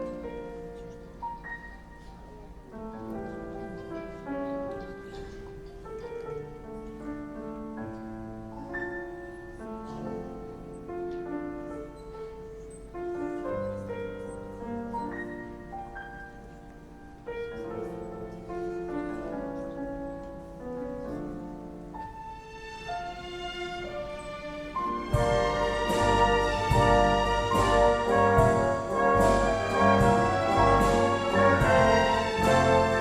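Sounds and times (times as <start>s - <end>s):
symphony orchestra playing: 0.0s - 5.6s, 13.0s - 33.0s
grand piano: 0.0s - 33.0s.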